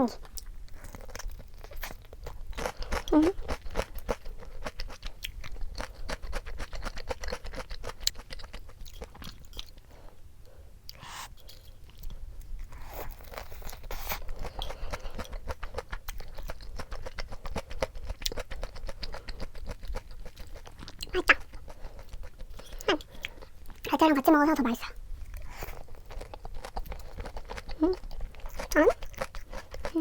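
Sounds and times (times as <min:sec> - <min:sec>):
crunching and chewing fried chicken: 0:00.0 - 0:30.0.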